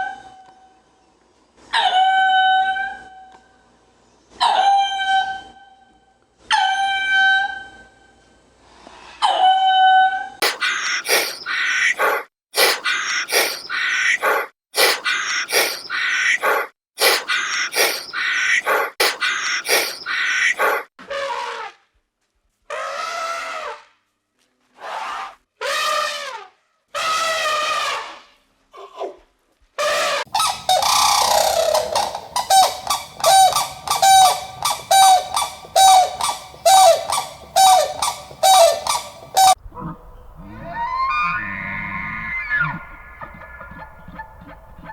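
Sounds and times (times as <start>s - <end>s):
bird harsh raspy calls: 10.4s - 20.9s, 30.3s - 44.9s.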